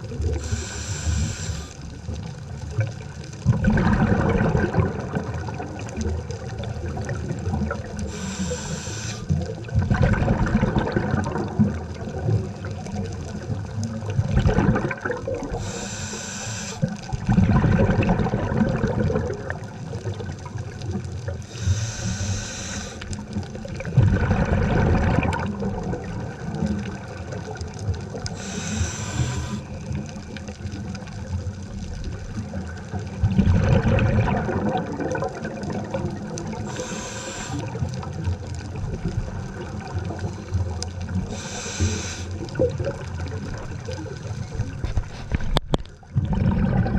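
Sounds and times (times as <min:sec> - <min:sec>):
exhaled bubbles rumbling: 0:00.0 - 0:16.2, 0:16.8 - 0:46.9
regulator inhalation hiss: 0:00.4 - 0:01.8, 0:08.0 - 0:09.4, 0:15.5 - 0:17.0, 0:21.4 - 0:23.2, 0:28.3 - 0:29.8, 0:36.6 - 0:37.8, 0:41.3 - 0:42.4.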